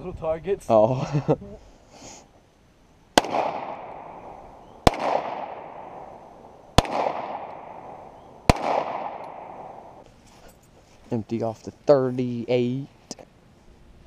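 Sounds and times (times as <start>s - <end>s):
revolver gunshots with echo: 3.2s - 10.0s.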